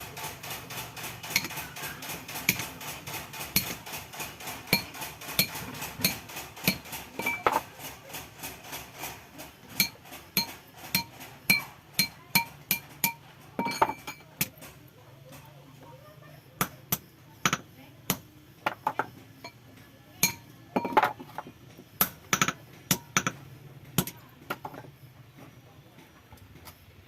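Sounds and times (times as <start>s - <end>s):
hammer striking iron on anvil: 3.6s - 3.8s, 4.7s - 7.6s, 9.8s - 14.5s, 20.2s - 21.1s.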